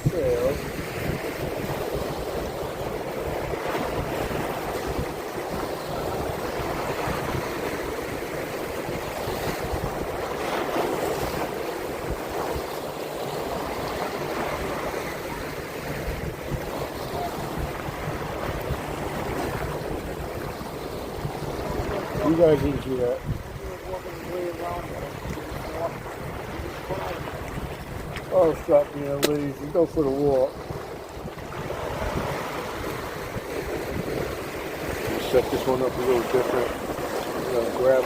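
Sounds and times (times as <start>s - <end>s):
surf washing on shoreline: 0.0s - 38.0s
wind buffeting microphone: 0.0s - 38.0s.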